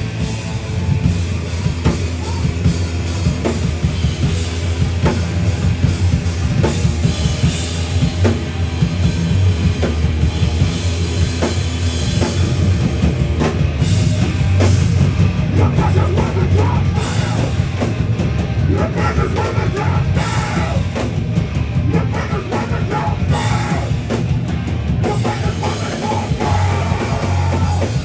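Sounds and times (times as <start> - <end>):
drums hitting: 0.0 - 28.0
heavy rock band playing: 0.0 - 28.0.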